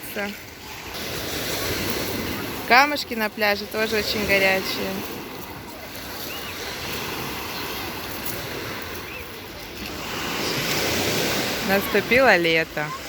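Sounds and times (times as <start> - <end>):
waves washing onto pebble beach: 0.0 - 13.0
faint distant voices: 0.3 - 13.0.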